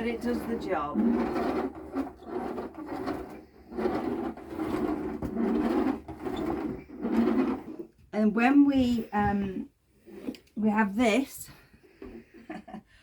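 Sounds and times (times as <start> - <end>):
carpet sweeper body rattling: 0.0 - 7.8
carpet sweeper brush whirring: 0.0 - 7.9.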